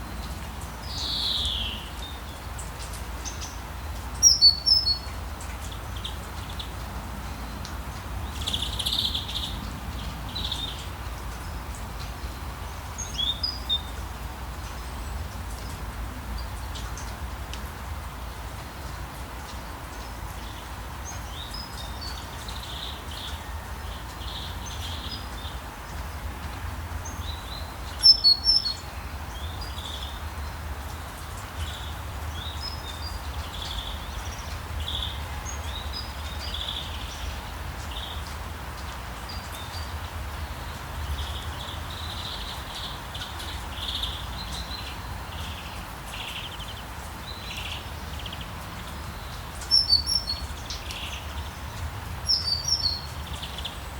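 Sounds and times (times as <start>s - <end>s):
small birds chirping: 0.2s - 17.2s, 18.8s - 26.2s, 27.0s - 53.9s.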